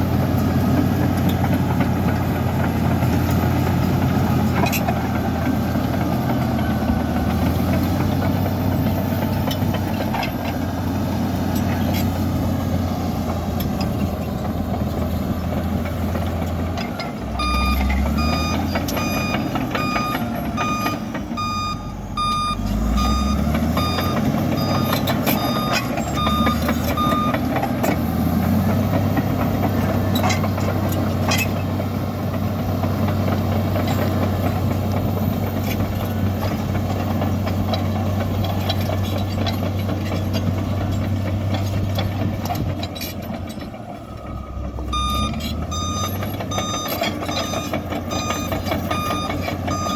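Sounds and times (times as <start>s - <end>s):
bulldozer diesel engine running: 0.0s - 49.9s
reversing alarm beeping: 17.4s - 27.5s, 44.0s - 49.9s.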